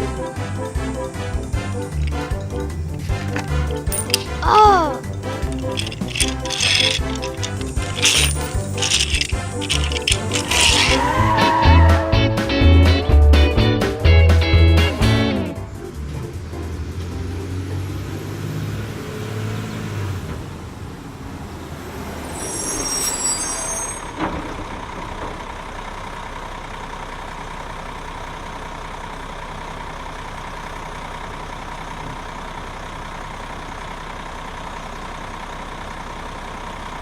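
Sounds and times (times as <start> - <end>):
truck engine idling: 0.0 - 4.4, 24.6 - 37.0
music: 0.0 - 18.2
high squeal: 22.0 - 24.2.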